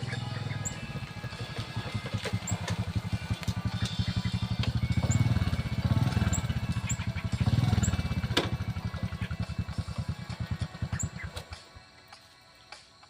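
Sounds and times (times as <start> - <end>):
high bird chirps: 0.0 - 1.1, 3.6 - 8.1, 10.7 - 11.5
small engine puttering: 0.0 - 11.8.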